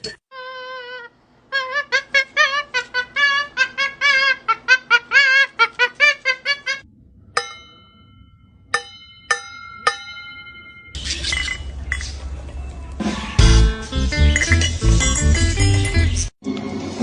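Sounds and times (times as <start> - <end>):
sharp clinks of struck glass: 8.8 - 12.2.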